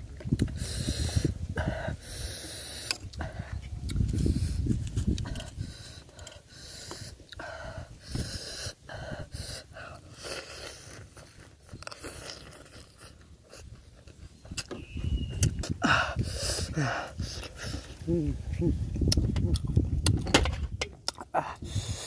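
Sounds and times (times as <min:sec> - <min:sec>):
man chewing with wet mouth clicks: 0:00.1 - 0:01.7, 0:02.6 - 0:07.5, 0:09.6 - 0:17.8, 0:18.9 - 0:20.2, 0:21.0 - 0:21.7
heavy nose breathing: 0:00.4 - 0:14.0, 0:15.6 - 0:18.1, 0:21.4 - 0:22.0.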